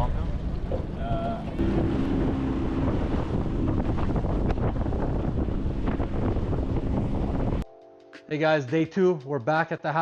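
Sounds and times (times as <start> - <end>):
boat motor droning: 0.0 - 7.6
wind buffeting microphone: 0.0 - 7.6.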